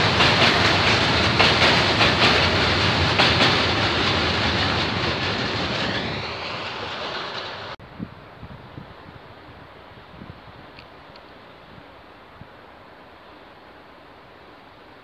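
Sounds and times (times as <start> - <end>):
wheels clicking over rail joints: 0.0 - 7.8
freight train rolling past: 0.0 - 10.6.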